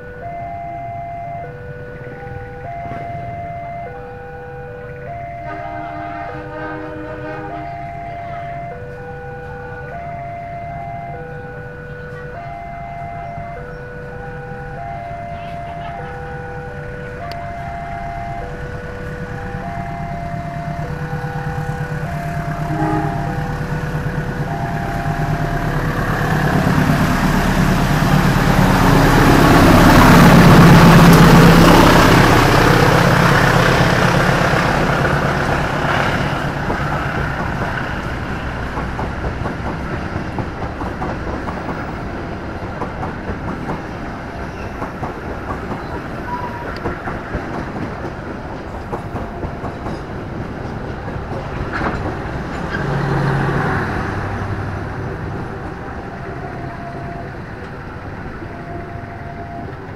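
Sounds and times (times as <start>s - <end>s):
level crossing alarm chiming: 0.0s - 38.9s, 54.8s - 59.9s
train rumble and wheel clatter: 1.0s - 59.9s.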